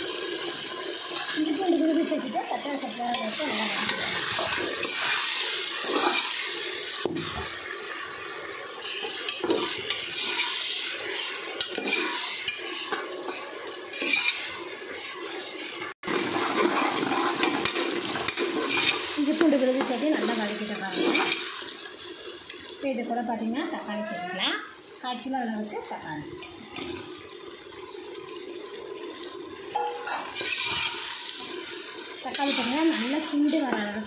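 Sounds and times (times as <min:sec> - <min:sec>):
food sizzling in hot oil: 0:00.0 - 0:34.0
ladle scraping pot: 0:08.8 - 0:21.8, 0:29.7 - 0:34.0.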